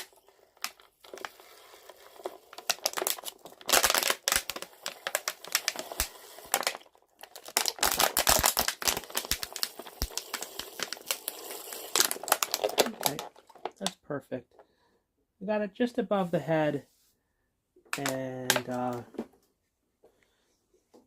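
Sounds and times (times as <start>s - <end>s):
plastic bottle crinkling: 0.0s - 14.0s, 17.9s - 19.0s.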